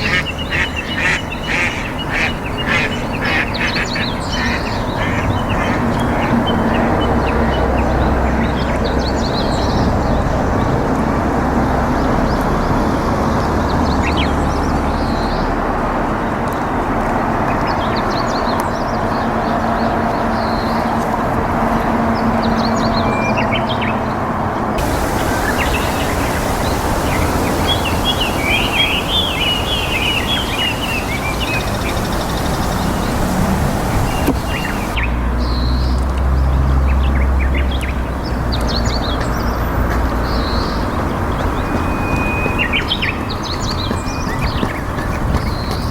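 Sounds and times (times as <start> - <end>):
steady rushing noise: 24.8 - 35.0
small birds chirping: 24.8 - 35.9.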